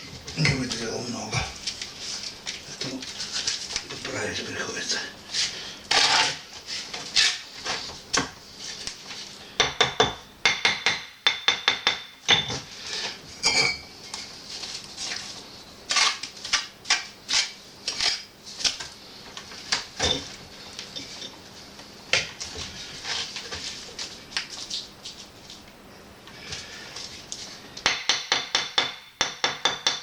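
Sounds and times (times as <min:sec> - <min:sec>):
trowel scraping on mortar and brick: 0:05.9 - 0:07.5, 0:15.9 - 0:16.2, 0:17.3 - 0:18.3.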